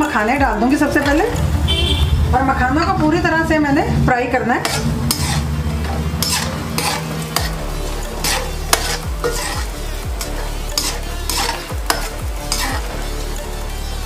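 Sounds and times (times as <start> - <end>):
frying in ghee sizzling: 4.0 - 14.0
metal spatula scraping pan: 4.0 - 14.0.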